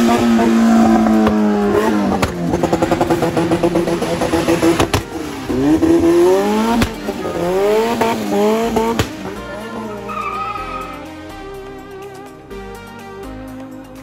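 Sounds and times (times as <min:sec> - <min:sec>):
engine sharp cracks: 0:00.0 - 0:12.3
car engine revving hard: 0:00.0 - 0:12.6.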